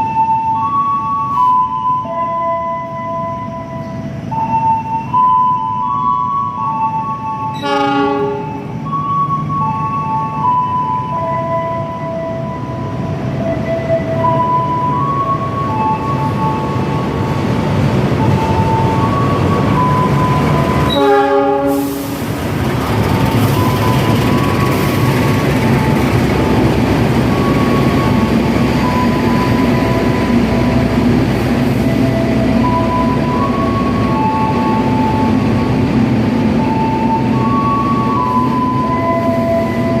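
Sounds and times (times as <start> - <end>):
low rumble of train: 0.0 - 40.0
train horn blast: 7.5 - 8.7, 20.8 - 22.2.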